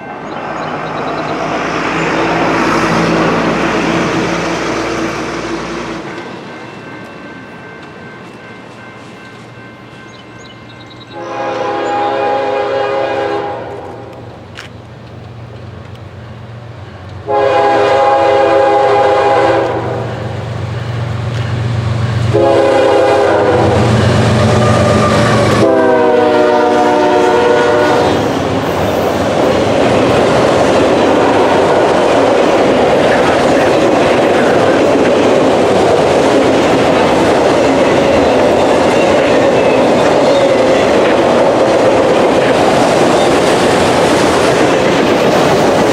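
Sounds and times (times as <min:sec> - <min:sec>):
freight cars rumbling past: 0:00.0 - 0:06.6, 0:17.7 - 0:45.9
locomotive horn blasts: 0:11.1 - 0:14.2, 0:17.2 - 0:20.3, 0:22.3 - 0:28.3.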